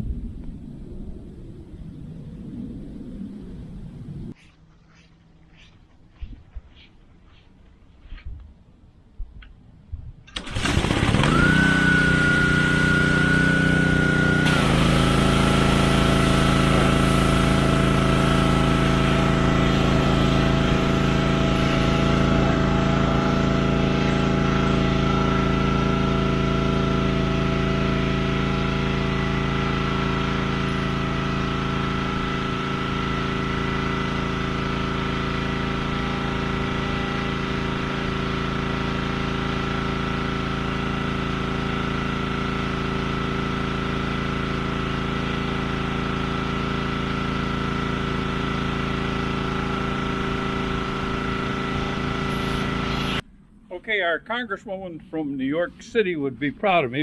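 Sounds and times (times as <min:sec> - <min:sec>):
pressure washer whining: 0:10.3 - 0:53.2.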